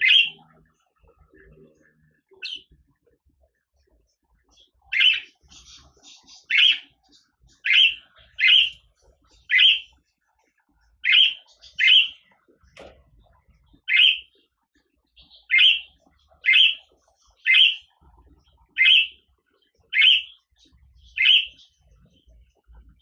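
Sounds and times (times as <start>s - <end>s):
budgerigar chirping: 0.0s - 0.5s, 2.4s - 2.7s, 4.5s - 10.0s, 11.0s - 12.4s, 13.8s - 14.5s, 15.2s - 18.0s, 18.7s - 19.3s, 19.9s - 21.8s
soft bird chatter: 0.0s - 23.0s.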